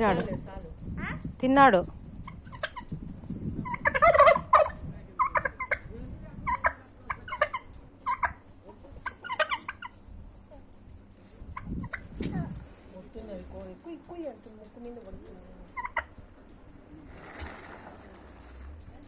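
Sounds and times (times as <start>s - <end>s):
turkey gobbling: 1.0s - 1.2s, 2.2s - 3.0s, 3.6s - 10.1s, 11.6s - 12.2s, 15.7s - 16.3s, 17.0s - 17.9s.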